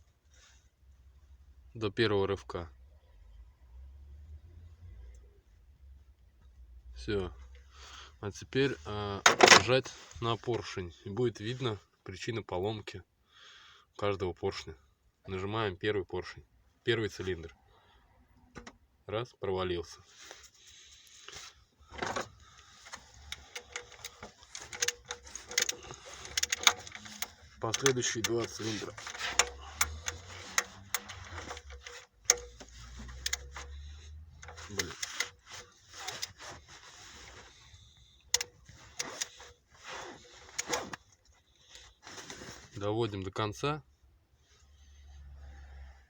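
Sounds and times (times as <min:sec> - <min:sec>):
metal scraping: 0:22.8 - 0:37.6
piston clicking and knocking: 0:22.9 - 0:36.3.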